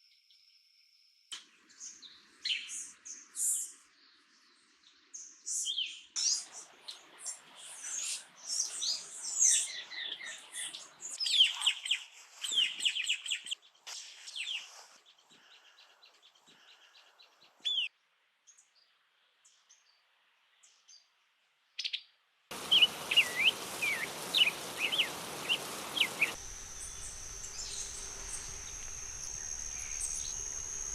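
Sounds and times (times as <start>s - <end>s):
birds chirping and singing: 15.2s - 17.9s, 22.5s - 30.9s
background hiss: 22.5s - 30.9s
high-pitched insect buzz: 25.1s - 30.9s.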